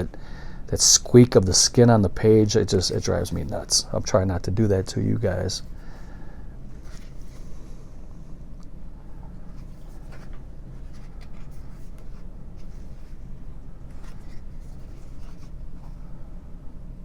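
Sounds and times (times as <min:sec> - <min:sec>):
book pages turning: 0:02.7 - 0:03.9, 0:06.7 - 0:08.2, 0:09.4 - 0:16.0
low hum: 0:05.1 - 0:17.0.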